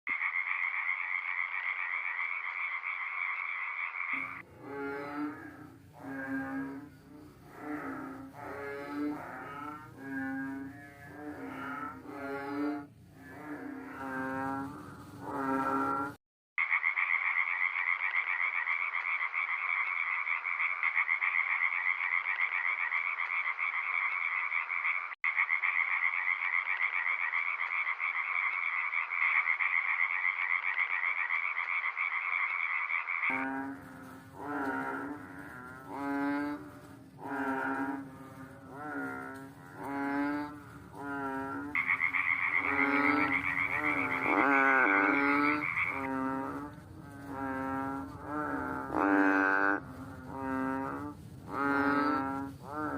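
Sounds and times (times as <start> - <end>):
frog croaking: 0.1 - 52.9
frogs buzzing trill: 0.1 - 52.9.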